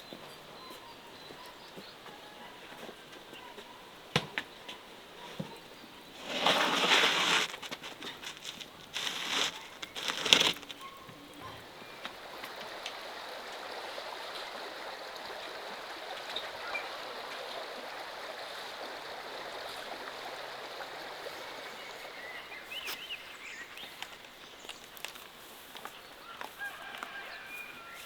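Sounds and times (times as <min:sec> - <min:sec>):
stream water rushing: 0:11.7 - 0:22.6.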